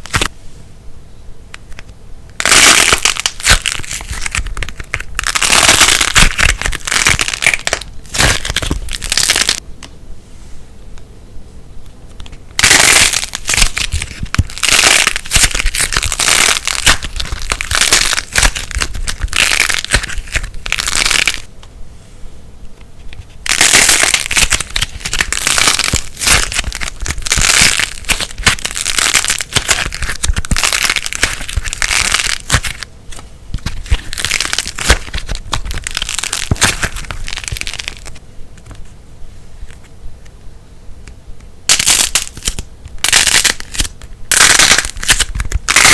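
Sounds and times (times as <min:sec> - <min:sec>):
slime squeezed crackling and popping: 0:02.4 - 0:09.6, 0:12.6 - 0:21.5, 0:23.4 - 0:38.2, 0:41.7 - 0:45.9.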